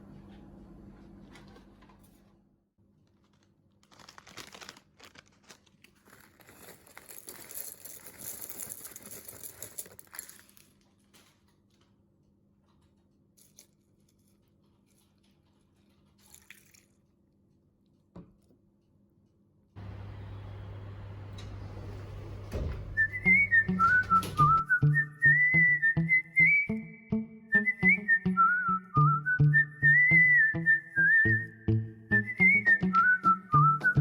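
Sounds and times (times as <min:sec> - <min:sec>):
packaging crinkling and tearing: 0:02.8 - 0:11.3
click: 0:21.3 - 0:22.8.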